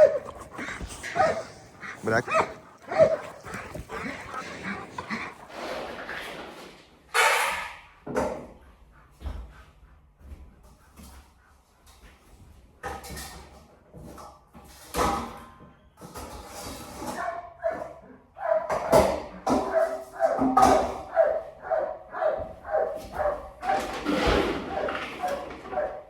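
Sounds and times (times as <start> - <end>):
dog whining and barking: 0.0 - 6.0, 17.2 - 26.0.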